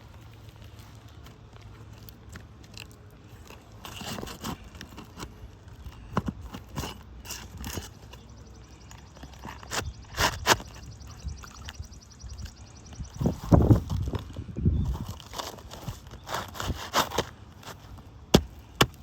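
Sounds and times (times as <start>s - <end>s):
roof shingles crunching and scraping: 0.0s - 11.0s, 13.2s - 19.0s.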